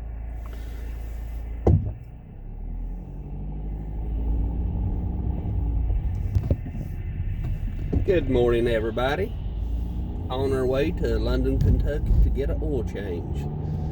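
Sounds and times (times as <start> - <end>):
car engine rumbling: 0.0 - 13.9
sharp thump: 1.6 - 2.1.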